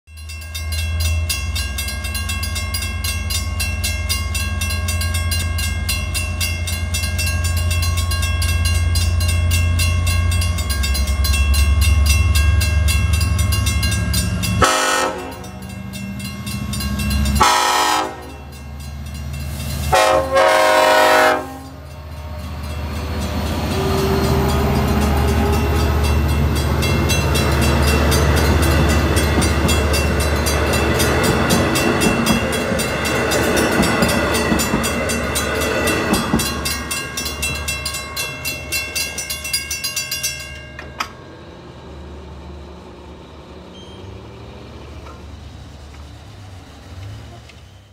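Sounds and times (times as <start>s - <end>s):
crossing bells: 0.1s - 44.6s
diesel locomotive engine rumbling: 0.1s - 47.9s
train horn: 14.6s - 15.6s, 17.4s - 18.5s, 19.9s - 21.8s.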